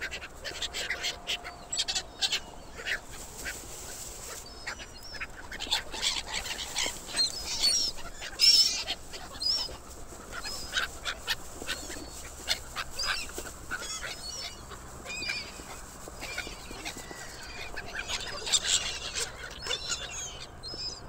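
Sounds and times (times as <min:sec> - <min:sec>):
flock of birds calling: 0:00.0 - 0:21.0.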